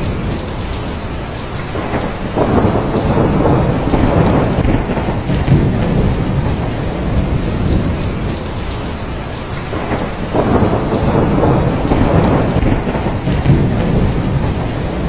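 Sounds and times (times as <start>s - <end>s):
low rumble of thunder: 0.0s - 15.0s
steady rain falling: 0.0s - 15.0s.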